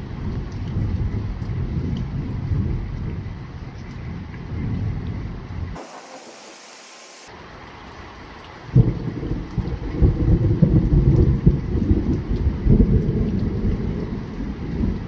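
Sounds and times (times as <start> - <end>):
thunder clap and rumble: 0.0 - 5.8, 8.8 - 15.0
light rain: 0.0 - 15.0.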